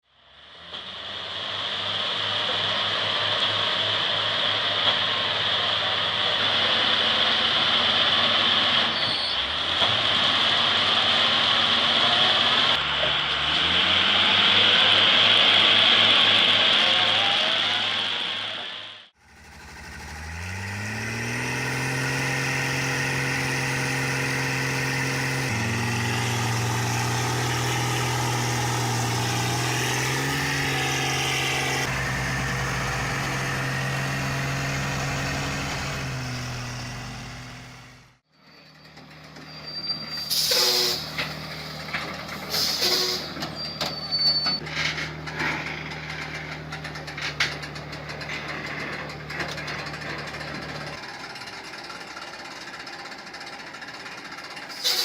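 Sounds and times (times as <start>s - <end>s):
heavy truck engine revving: 0.3s - 55.0s
second engine running steadily: 19.2s - 38.2s, 44.6s - 55.0s.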